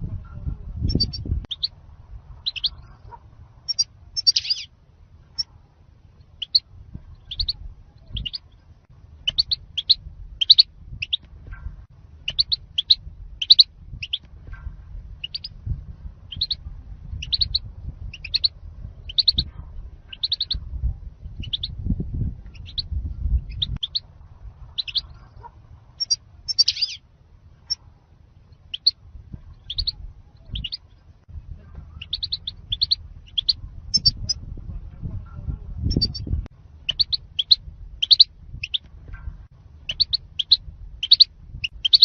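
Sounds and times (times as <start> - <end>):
low background rumble: 0.0 - 42.0
bird chirping: 0.8 - 1.8, 2.4 - 4.7, 6.2 - 8.6, 9.2 - 11.3, 12.2 - 14.3, 15.2 - 15.6, 16.3 - 19.5, 20.1 - 20.6, 21.3 - 24.1, 24.7 - 27.0, 28.4 - 31.1, 31.8 - 34.4, 35.9 - 38.9, 39.8 - 42.0.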